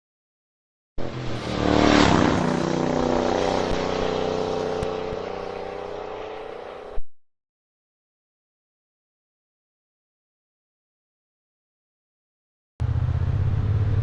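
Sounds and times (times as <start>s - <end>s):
motorcycle engine running: 1.0s - 7.0s, 12.8s - 14.0s.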